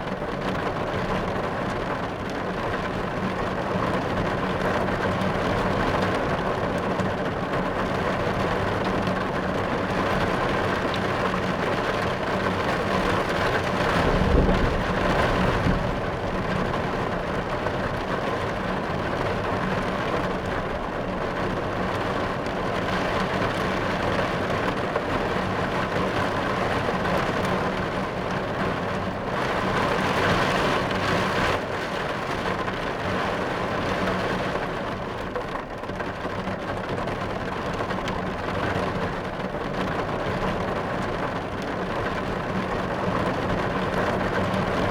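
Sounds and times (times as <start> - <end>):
rain drumming on car roof: 0.0 - 44.9
thunder rumble: 13.6 - 17.8.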